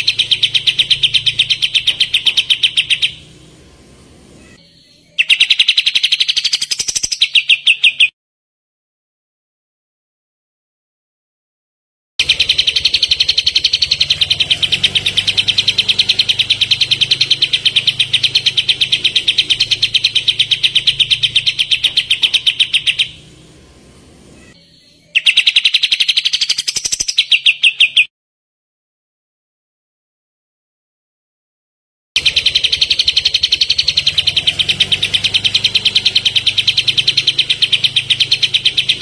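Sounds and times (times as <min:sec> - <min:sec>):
songbird singing fast trill: 0:00.0 - 0:03.4, 0:04.4 - 0:08.1, 0:12.2 - 0:23.3, 0:24.4 - 0:28.1, 0:32.2 - 0:39.0.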